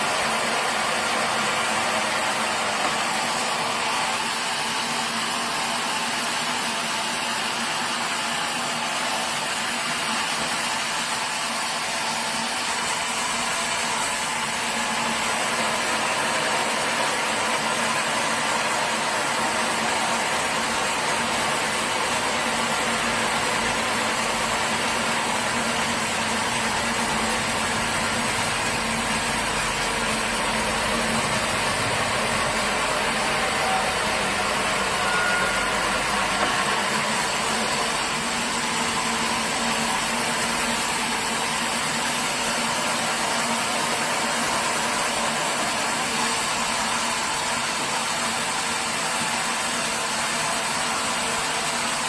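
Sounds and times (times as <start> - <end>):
sawmill machinery running: 0.0 - 52.0.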